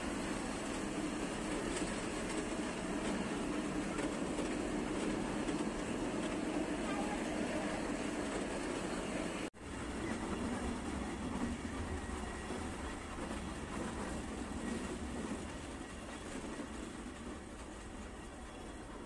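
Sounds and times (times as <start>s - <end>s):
train carriage running on rails: 0.0s - 19.0s.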